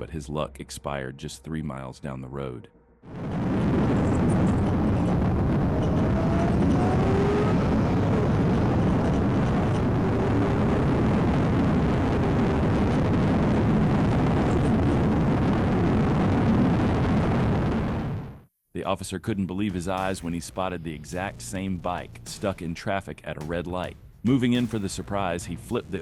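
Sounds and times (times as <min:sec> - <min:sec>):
vehicle driving rumble: 0:03.2 - 0:11.5.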